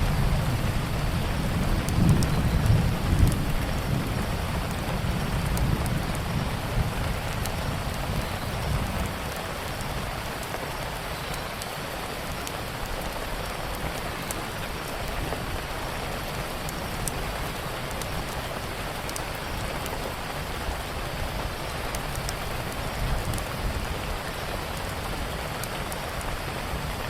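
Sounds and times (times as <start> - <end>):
steady rain hiss: 0.0 - 27.0
faint sharp clicks: 1.9 - 3.5, 19.0 - 20.2.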